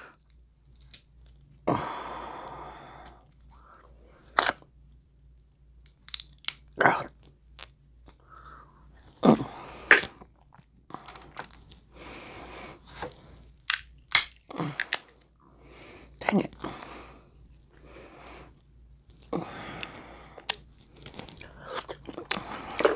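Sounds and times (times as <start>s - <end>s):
crab shells cracking: 0.2s - 1.6s, 5.8s - 6.8s, 13.7s - 15.2s.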